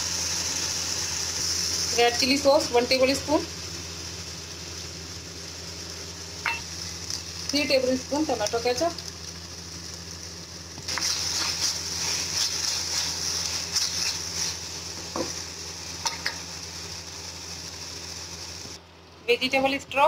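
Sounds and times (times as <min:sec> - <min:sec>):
steady low hum: 0:00.0 - 0:20.0
vegetables sizzling in a pan: 0:00.0 - 0:20.0
spatula scraping a pan: 0:10.9 - 0:14.6.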